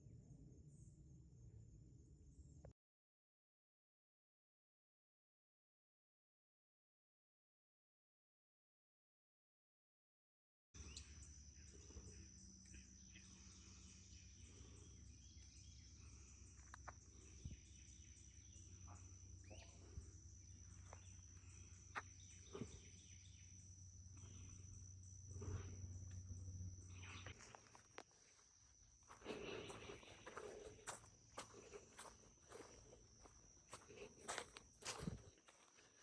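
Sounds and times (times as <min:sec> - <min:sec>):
night insect chorus: 0:00.0 - 0:02.6, 0:10.8 - 0:36.0
low steady hum: 0:10.8 - 0:28.0.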